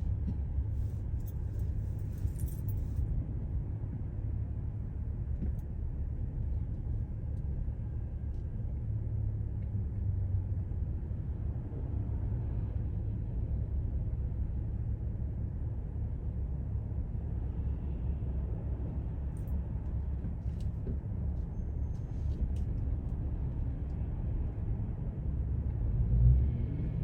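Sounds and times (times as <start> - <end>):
car driving rumble: 0.0 - 3.3.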